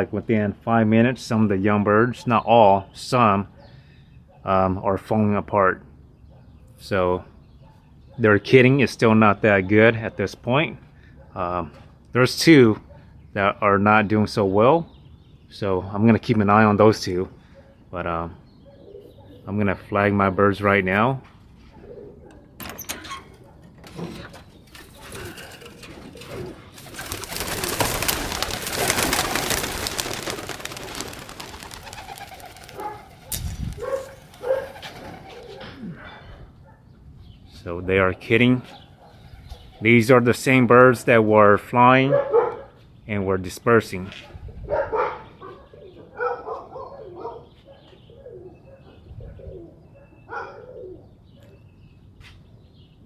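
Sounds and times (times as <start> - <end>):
pigeons cooing: 18.6 - 19.5, 21.7 - 22.6, 24.8 - 36.6, 44.7 - 51.2
pigeon wings clattering: 24.4 - 35.6.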